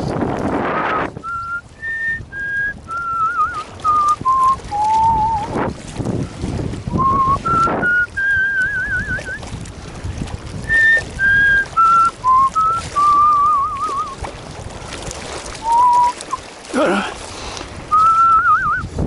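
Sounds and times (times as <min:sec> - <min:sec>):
person whistling a tune: 0:01.2 - 0:05.5, 0:06.9 - 0:09.4, 0:10.7 - 0:14.2, 0:15.6 - 0:16.4, 0:17.9 - 0:18.9.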